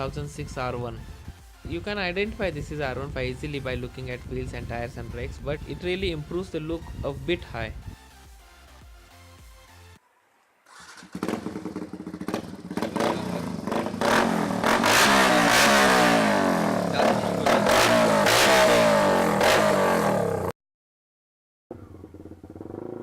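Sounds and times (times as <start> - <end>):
motorcycle engine revving hard: 10.7 - 20.5, 21.7 - 23.0.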